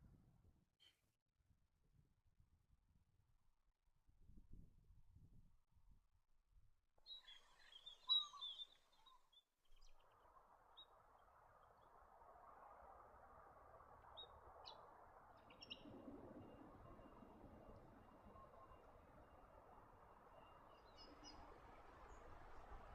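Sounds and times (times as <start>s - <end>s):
bird chirps: 7.0s - 10.2s.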